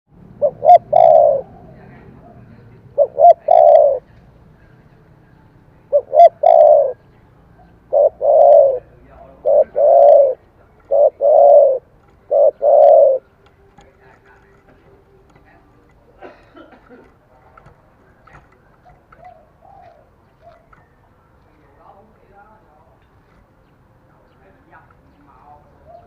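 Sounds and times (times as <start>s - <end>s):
dove cooing: 0.3s - 4.1s, 5.9s - 7.0s, 7.6s - 14.0s, 18.2s - 21.0s, 25.8s - 26.0s.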